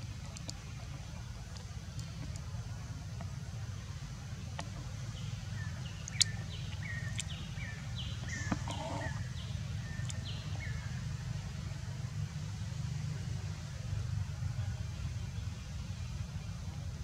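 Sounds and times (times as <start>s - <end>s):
birds chirping: 3.8s - 11.0s.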